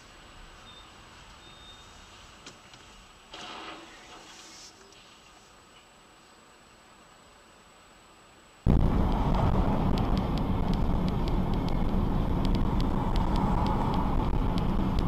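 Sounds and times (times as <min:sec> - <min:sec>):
road and engine rumble: 0:00.0 - 0:15.0
sharp ticks: 0:09.0 - 0:15.0.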